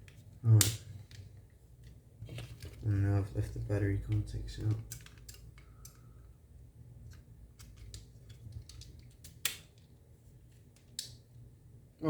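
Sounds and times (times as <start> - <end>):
plastic parts clicking and tapping: 4.0 - 6.1, 7.0 - 9.9.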